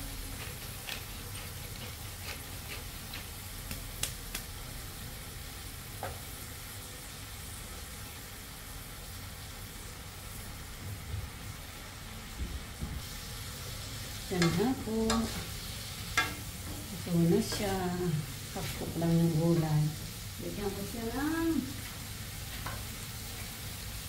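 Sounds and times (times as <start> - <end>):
vegetables sizzling in a wok: 0.0 - 24.0.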